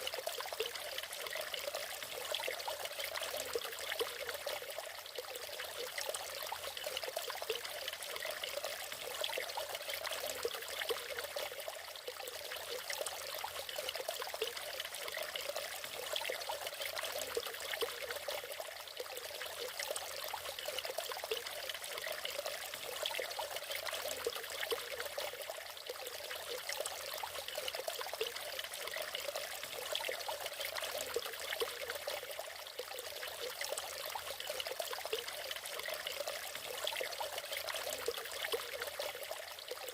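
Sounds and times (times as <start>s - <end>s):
waterfall splashing and trickling: 0.0s - 39.9s.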